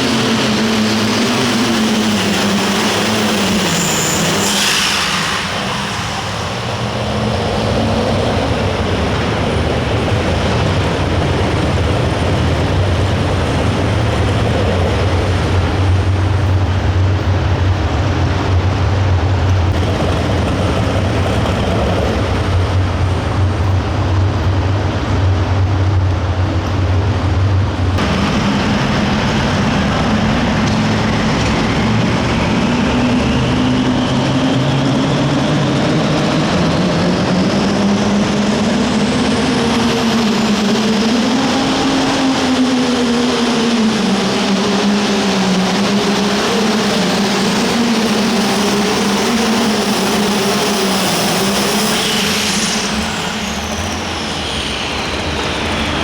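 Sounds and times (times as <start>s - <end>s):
high turbo whistle: 2.9s - 6.7s
low drone: 27.5s - 56.0s
diesel engine under load: 27.8s - 56.0s.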